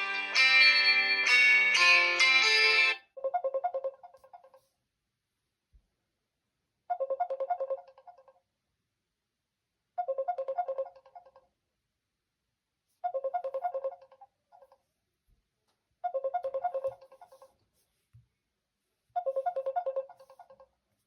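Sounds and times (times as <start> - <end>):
phone ringtone chimes: 0.0 - 3.0.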